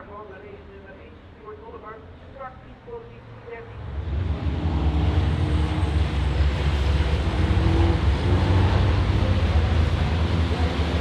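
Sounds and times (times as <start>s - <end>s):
truck diesel engines droning: 2.4s - 11.0s.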